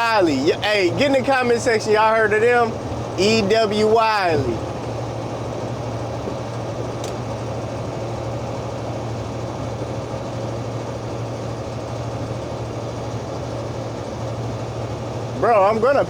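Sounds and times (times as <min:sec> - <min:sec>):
truck engine and road drone: 0:00.0 - 0:16.0.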